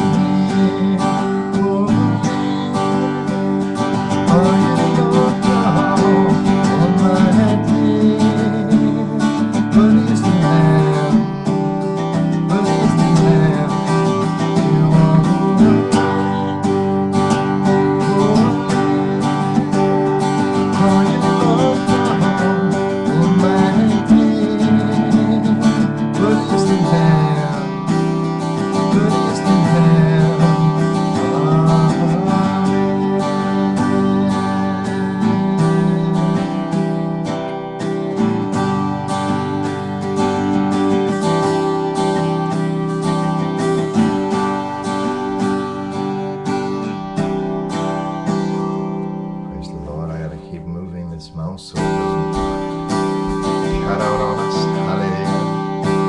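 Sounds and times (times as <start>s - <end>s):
strummed acoustic guitar: 0.0s - 56.0s.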